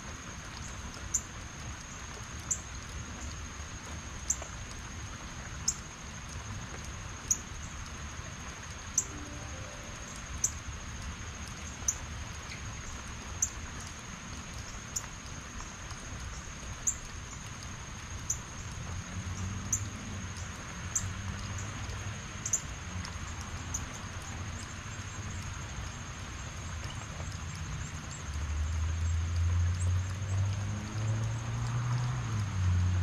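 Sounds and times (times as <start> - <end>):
heavy rain falling: 0.0 - 33.0
thin high steady tone: 9.0 - 10.8.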